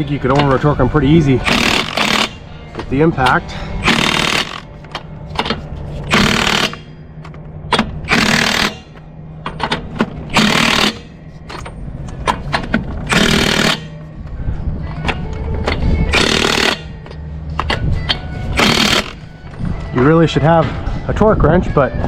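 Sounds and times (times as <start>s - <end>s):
steady low hum: 0.0s - 21.2s
impact wrench hammering: 1.4s - 2.9s, 3.8s - 7.0s, 7.7s - 14.0s, 16.1s - 17.0s, 18.6s - 19.2s.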